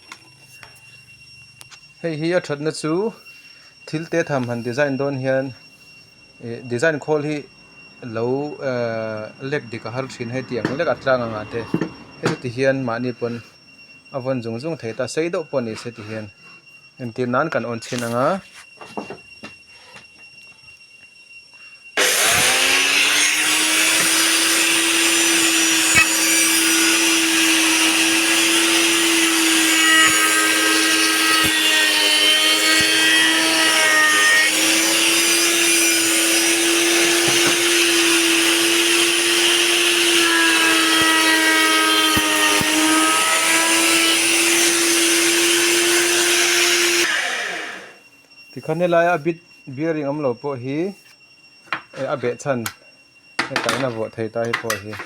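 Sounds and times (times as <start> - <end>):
wood router motor whining: 6.4 - 13.7, 22.0 - 49.2.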